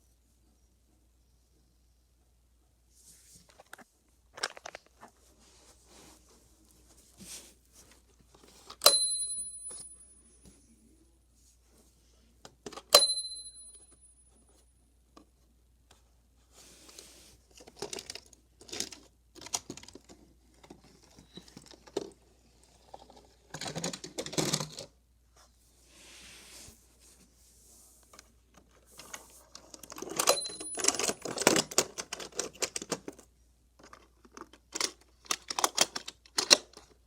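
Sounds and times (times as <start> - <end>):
toy cars metallic clinks: 29.9 - 31.9.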